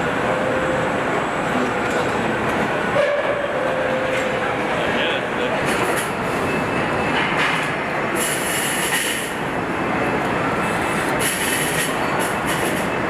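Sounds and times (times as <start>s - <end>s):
machinery and conveyors rattling: 0.0s - 13.0s.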